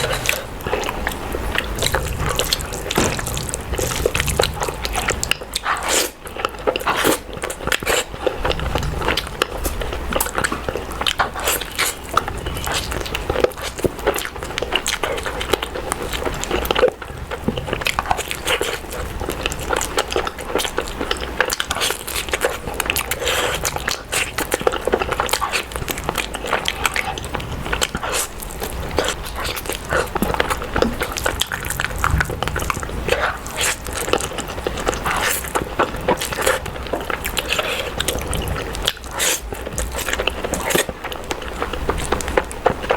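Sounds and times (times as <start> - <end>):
biting and chewing food: 0.0 - 42.9
crunches and mouth clicks: 21.0 - 42.9.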